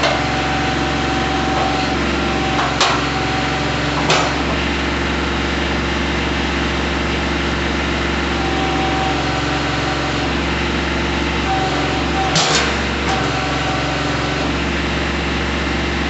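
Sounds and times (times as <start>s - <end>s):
tractor diesel engine running: 0.0s - 16.0s
sharp knocks: 4.0s - 4.6s.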